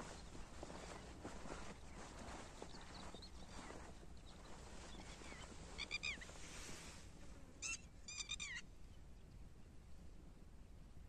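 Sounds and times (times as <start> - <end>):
distant bird calling: 4.3 - 6.4, 7.6 - 8.7.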